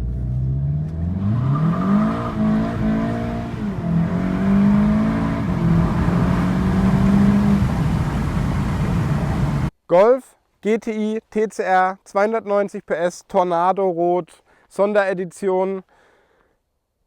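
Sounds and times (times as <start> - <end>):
car engine accelerating hard: 0.0 - 9.7.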